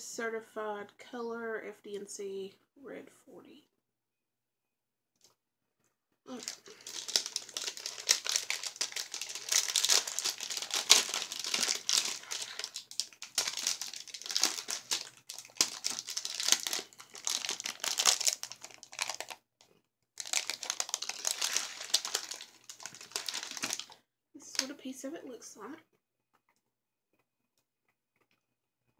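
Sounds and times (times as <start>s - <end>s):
candy wrapper crinkling: 6.3s - 19.4s, 20.2s - 24.0s.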